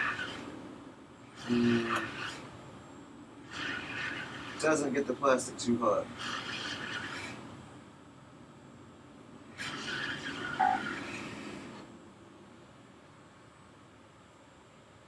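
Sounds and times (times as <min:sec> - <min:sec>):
hot-air blower rushing: 0:00.0 - 0:02.6, 0:03.4 - 0:05.1, 0:06.1 - 0:07.6, 0:09.5 - 0:11.9.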